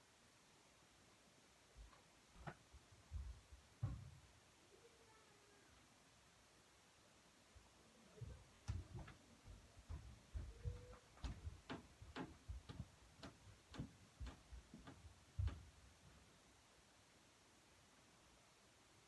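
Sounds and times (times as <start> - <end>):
faint knocking and tapping: 1.8 - 4.3, 8.2 - 16.2.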